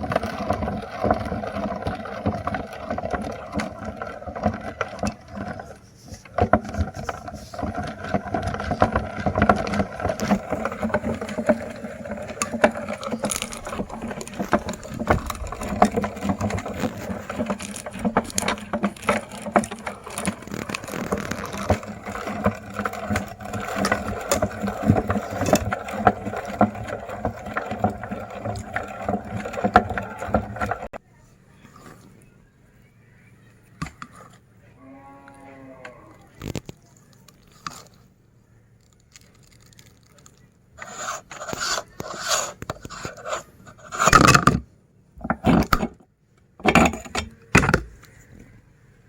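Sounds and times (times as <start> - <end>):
crunches and cracks: 0.0 - 31.0, 35.8 - 44.6
meat grinder grinding: 0.0 - 31.0, 40.8 - 44.5.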